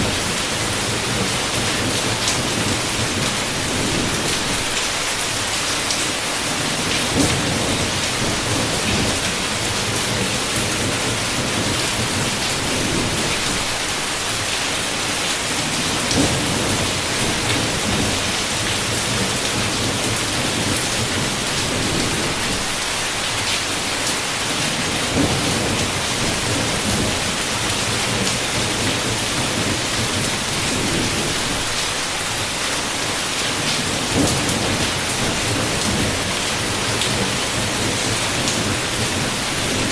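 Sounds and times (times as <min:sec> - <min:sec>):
heavy rain: 0:00.0 - 0:39.9
rolling thunder: 0:06.6 - 0:13.8, 0:15.9 - 0:22.8, 0:24.8 - 0:31.8.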